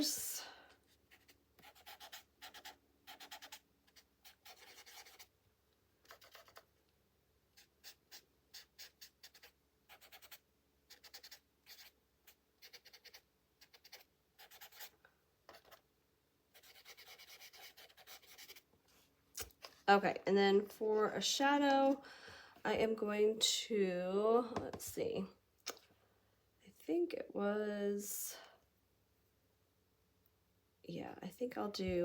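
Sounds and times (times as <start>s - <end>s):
chalk pastel scratching on paper: 1.1s - 5.3s, 6.0s - 6.7s, 7.6s - 14.9s, 15.5s - 15.8s, 16.5s - 18.7s.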